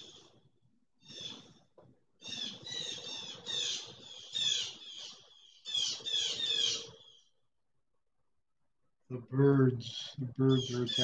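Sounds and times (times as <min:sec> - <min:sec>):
birds squawking: 0:02.2 - 0:07.3, 0:09.8 - 0:11.0.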